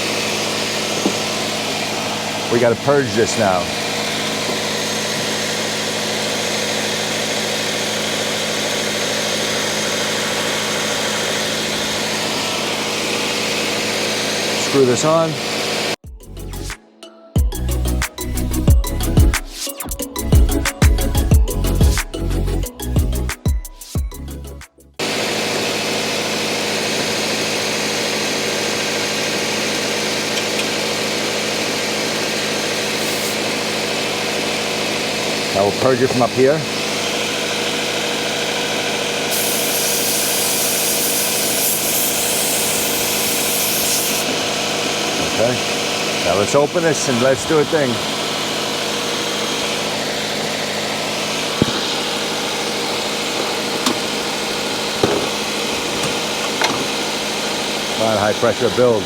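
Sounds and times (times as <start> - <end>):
car engine idling: 0.0 - 16.0, 25.0 - 39.3, 44.2 - 59.0
broad hiss: 39.3 - 44.3.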